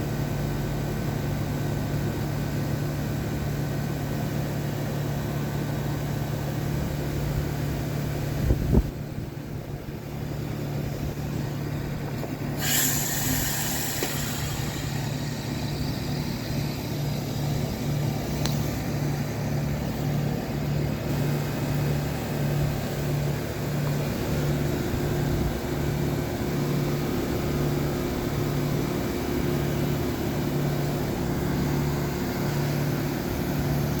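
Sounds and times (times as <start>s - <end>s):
heat pump hiss with pulsing hum: 0.0s - 34.0s
steady tone: 12.6s - 19.3s.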